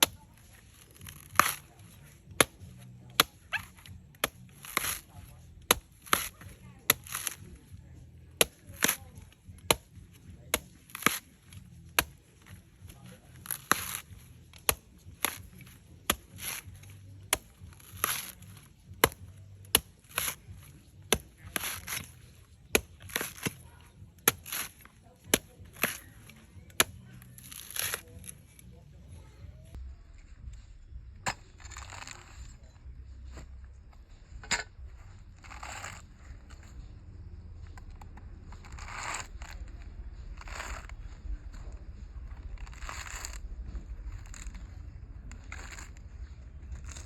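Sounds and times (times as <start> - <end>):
blade chopping coconut: 0.0 - 28.3, 31.3 - 32.3, 37.8 - 41.0, 42.3 - 43.4, 44.0 - 44.7, 45.3 - 47.0.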